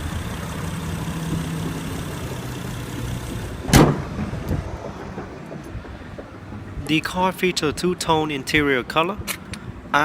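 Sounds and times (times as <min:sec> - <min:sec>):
car engine idling: 0:00.0 - 0:10.0
car body panel slamming: 0:03.6 - 0:06.8.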